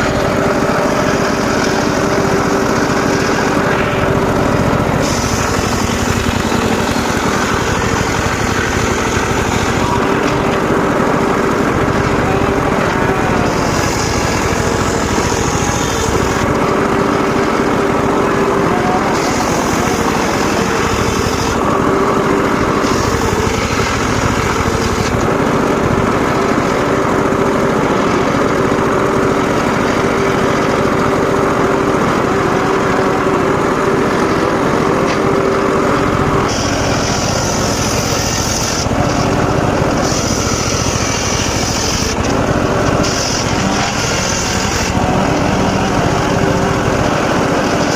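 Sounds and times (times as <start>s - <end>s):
circular saw cutting wood: 0.0s - 47.9s.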